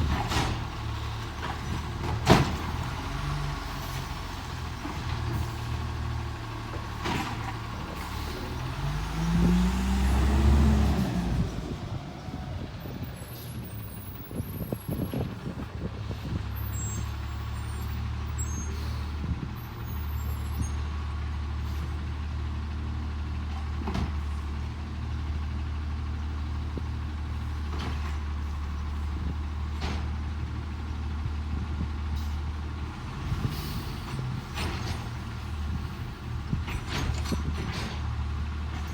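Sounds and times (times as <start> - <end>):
garbage truck engine revving: 0.0 - 13.1
knocks and clanks: 36.5 - 38.9.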